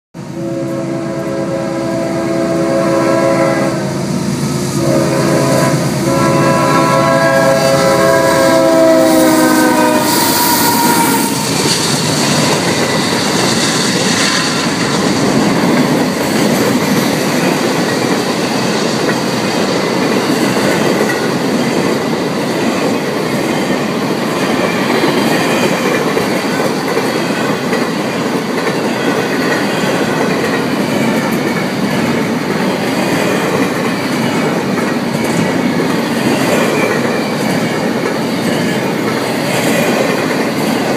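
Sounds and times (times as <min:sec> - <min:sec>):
locomotive air horn blasts: 0:00.2 - 0:11.6
train wheels rumbling on rails: 0:00.2 - 0:40.9.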